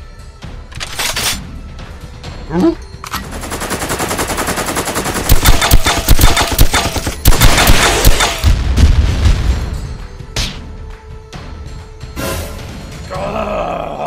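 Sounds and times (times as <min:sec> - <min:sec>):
automatic gunfire: 0:03.5 - 0:08.5.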